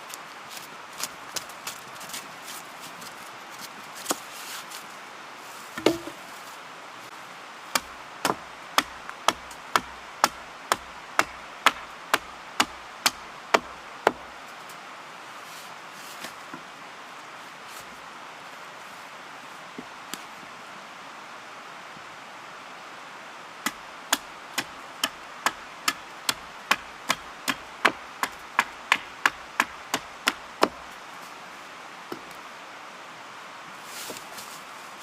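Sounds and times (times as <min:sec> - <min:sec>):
heavy thud: 0:05.8 - 0:06.2
wood chopping strikes: 0:05.8 - 0:06.2, 0:07.7 - 0:14.3, 0:23.6 - 0:30.8.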